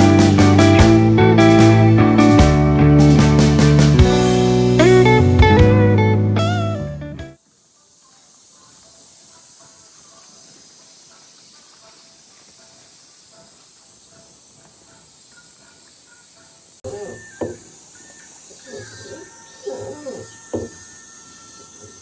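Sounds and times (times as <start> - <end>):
insects shrilling: 7.4 - 22.0.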